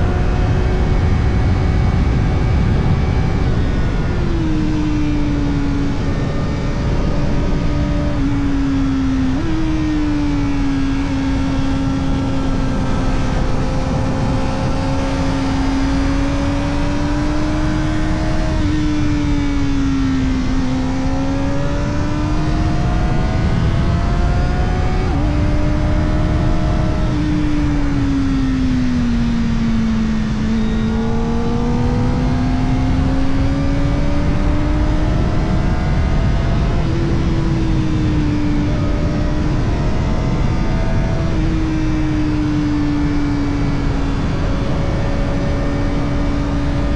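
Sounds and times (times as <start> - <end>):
constant rushing noise: 0.0 - 46.9
motorcycle engine at high revs: 0.0 - 46.9.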